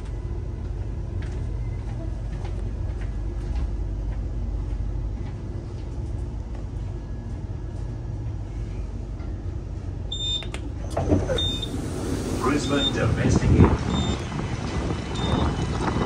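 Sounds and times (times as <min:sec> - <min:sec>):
train rumble slowing to a stop: 0:00.0 - 0:16.0
door button beep: 0:10.1 - 0:11.8, 0:12.6 - 0:13.1, 0:13.9 - 0:14.2.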